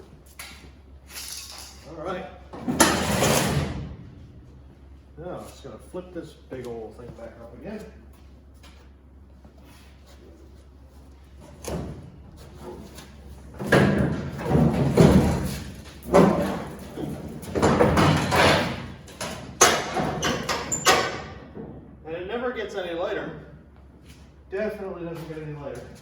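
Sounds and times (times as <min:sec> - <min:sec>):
metal thumping and knocking: 0:13.6 - 0:22.0.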